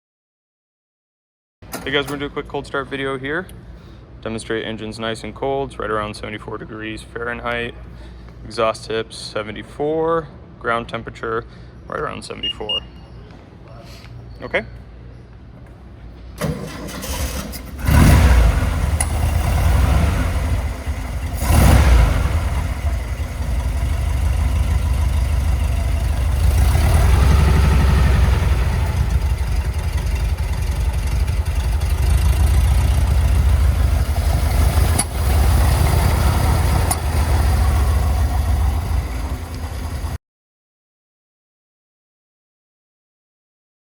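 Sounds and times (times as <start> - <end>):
starter motor cranking: 16.4 - 40.0
car engine revving and idling: 16.9 - 40.2.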